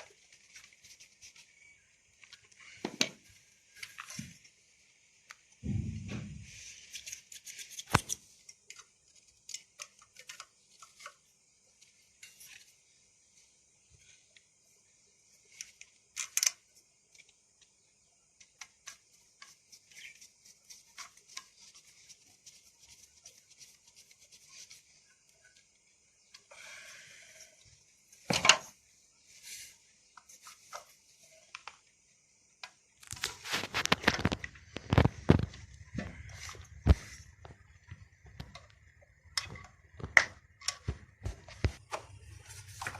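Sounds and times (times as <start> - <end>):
sharp knock: 5.6 - 6.4
clicks and knocks of parts handled: 15.5 - 17.7, 32.6 - 42.9.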